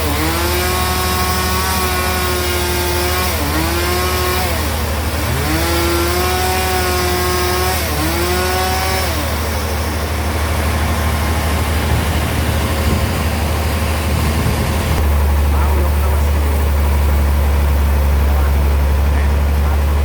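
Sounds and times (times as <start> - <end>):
blade rasping through log: 0.0 - 15.1
bandsaw whine: 0.0 - 20.0
engine hum: 0.0 - 20.0.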